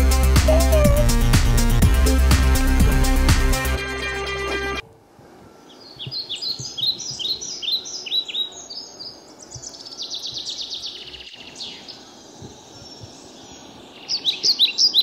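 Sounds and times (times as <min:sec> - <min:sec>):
small birds chirping and trilling: 0:00.4 - 0:01.3, 0:05.5 - 0:15.0.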